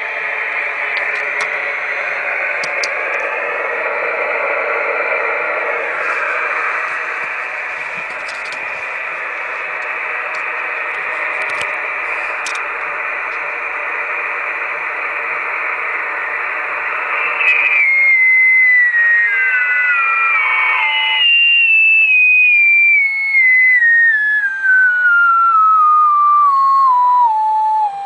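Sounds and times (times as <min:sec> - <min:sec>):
radio receiver hiss: 0:00.0 - 0:21.4
whistling tone stepping down in pitch: 0:17.3 - 0:28.0.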